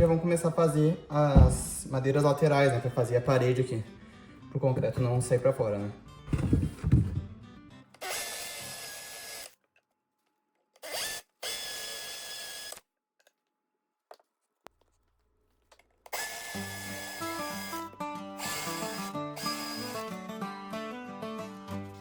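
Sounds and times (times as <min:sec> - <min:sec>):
background music with melody: 0:00.0 - 0:08.0, 0:16.6 - 0:22.0
power drill whining: 0:08.0 - 0:09.6, 0:10.8 - 0:12.8, 0:16.1 - 0:20.2.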